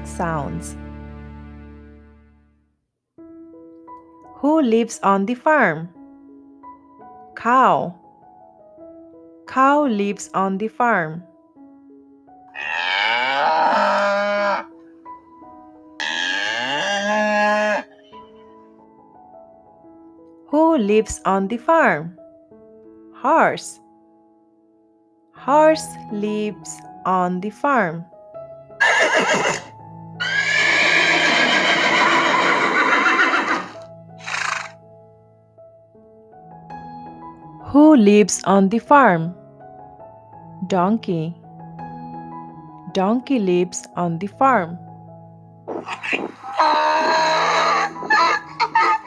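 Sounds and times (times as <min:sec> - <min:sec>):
soft background music: 0:00.0 - 0:49.0
cow mooing: 0:12.6 - 0:14.7, 0:16.0 - 0:18.1, 0:28.8 - 0:34.7, 0:45.9 - 0:49.0
horse whinnying: 0:12.6 - 0:14.8, 0:16.0 - 0:18.4, 0:28.8 - 0:34.8, 0:45.7 - 0:49.0.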